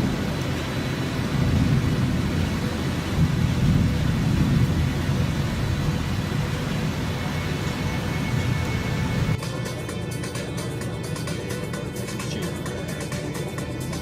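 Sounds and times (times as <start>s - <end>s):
storm wind buffeting microphone: 0.0s - 9.4s.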